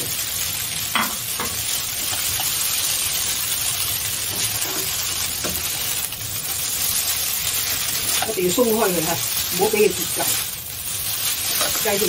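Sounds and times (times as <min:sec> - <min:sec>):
noodles sizzling in a wok: 0:00.0 - 0:12.0
chopsticks tapping: 0:01.0 - 0:02.6.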